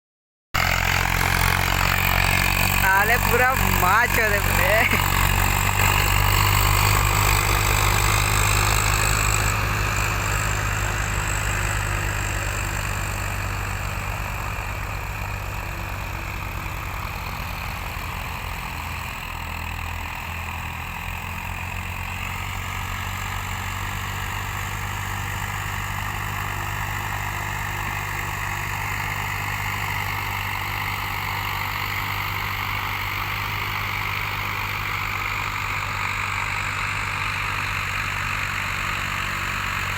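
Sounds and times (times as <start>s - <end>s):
tractor diesel engine running: 0.6s - 39.9s.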